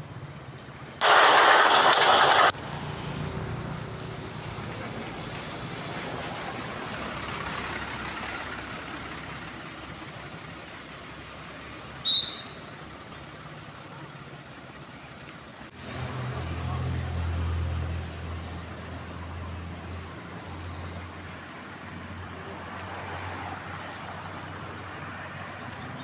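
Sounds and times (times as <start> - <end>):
bus passing: 0.0 - 26.0
loud hiss: 1.0 - 3.0.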